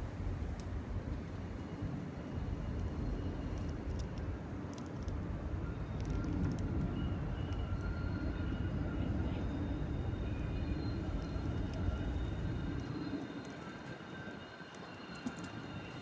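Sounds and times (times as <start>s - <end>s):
train rumbling: 0.0s - 16.0s
faint high whining tones: 5.6s - 16.0s.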